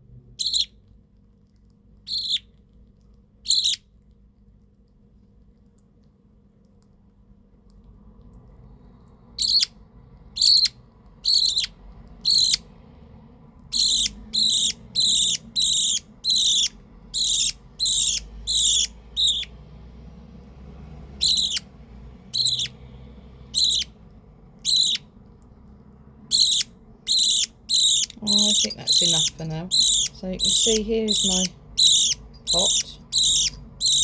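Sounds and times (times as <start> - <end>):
budgerigar chick begging calls: 0.4 - 0.7, 2.1 - 2.5, 3.4 - 3.8, 9.4 - 9.8, 10.4 - 12.7, 13.7 - 19.6, 21.2 - 21.7, 22.3 - 22.8, 23.5 - 24.0, 24.6 - 25.1, 26.3 - 34.0.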